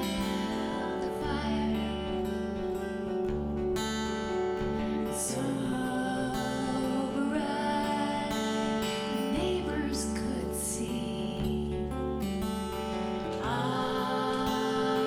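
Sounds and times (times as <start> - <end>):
person singing: 0.0 - 3.2, 5.1 - 12.1, 13.2 - 15.0
strummed acoustic guitar: 0.0 - 15.0.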